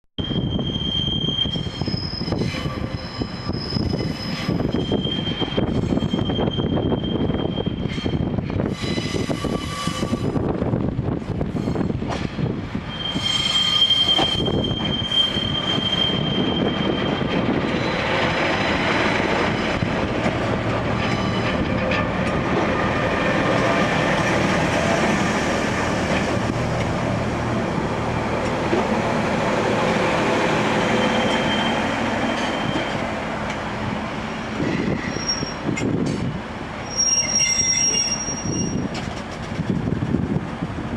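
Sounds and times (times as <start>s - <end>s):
train wheels squealing: 0.2s - 10.5s, 11.5s - 12.0s, 12.9s - 19.9s, 21.0s - 22.0s, 30.8s - 33.1s, 34.6s - 35.8s, 36.8s - 39.1s
train rumbling: 0.2s - 40.9s.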